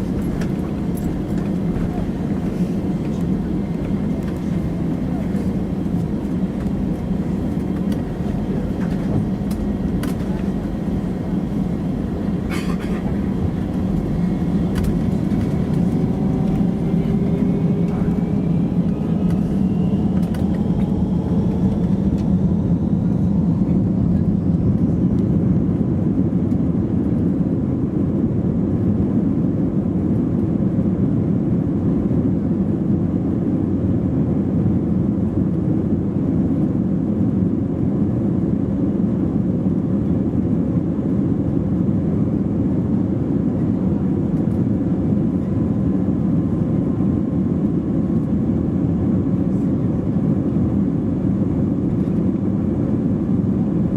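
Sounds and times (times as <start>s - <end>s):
jet engines spooling up: 0.0s - 24.9s.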